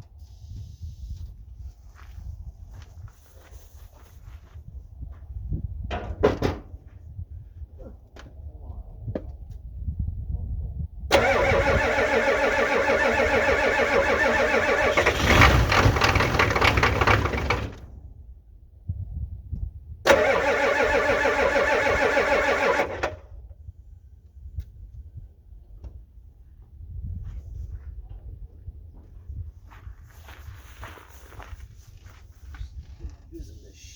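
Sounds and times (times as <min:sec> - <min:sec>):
diesel engine cranking: 0:11.1 - 0:18.1, 0:20.1 - 0:23.3.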